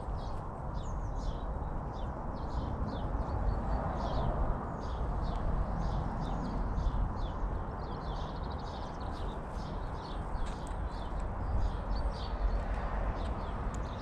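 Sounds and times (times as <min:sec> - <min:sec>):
birds chirping: 0:04.8 - 0:14.0.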